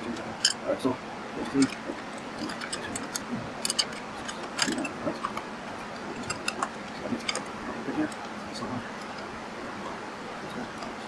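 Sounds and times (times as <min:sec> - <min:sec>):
hand tools and metal parts clinking: 0:00.0 - 0:00.6, 0:01.4 - 0:05.4.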